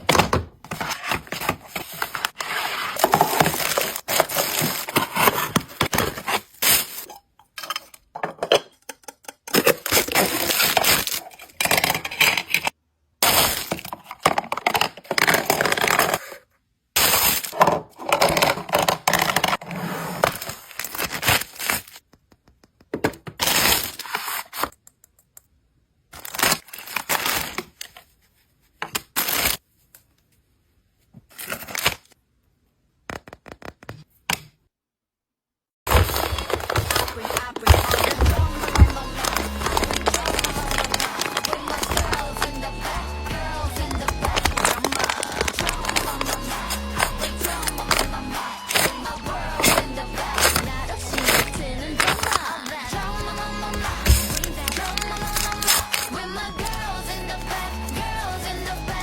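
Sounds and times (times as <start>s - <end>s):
paper bags crinkling and tearing: 0.1s - 7.1s, 9.6s - 16.3s, 17.0s - 19.6s, 20.2s - 22.0s, 23.4s - 24.7s, 26.2s - 27.9s, 35.9s - 58.2s.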